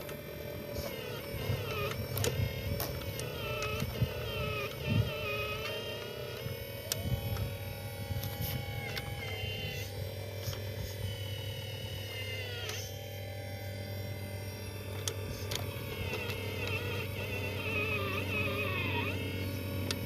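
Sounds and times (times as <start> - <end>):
small electric motors whining: 0.0 - 20.0
steady low hum: 0.0 - 20.0.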